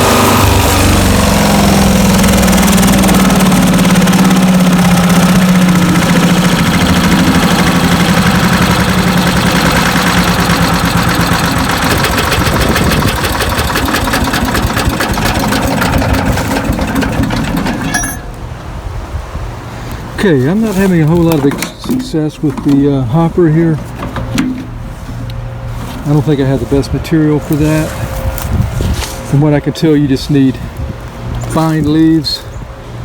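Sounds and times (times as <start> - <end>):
shredder rattling: 0.0 - 18.5, 20.7 - 26.2
gas engine running under load: 0.0 - 32.1.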